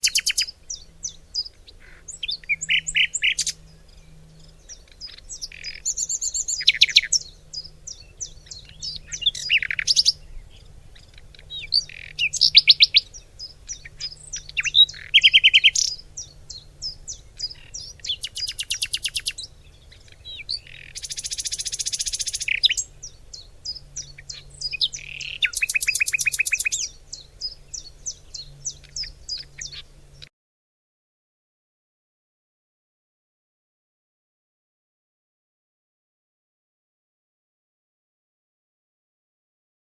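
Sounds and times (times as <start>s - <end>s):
fast bird trills: 0.0s - 3.7s, 4.6s - 29.9s
birds singing: 0.0s - 30.3s.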